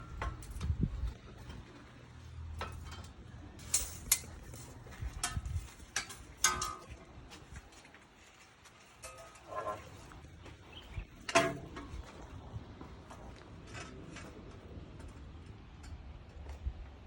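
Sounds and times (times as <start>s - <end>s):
metal tools clinking: 0.0s - 7.0s, 9.0s - 10.2s.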